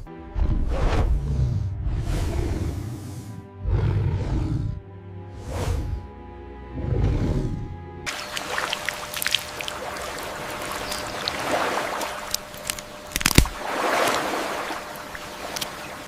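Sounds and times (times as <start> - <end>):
water splashing and sloshing: 8.0 - 16.0
sharp clicks: 12.2 - 13.6.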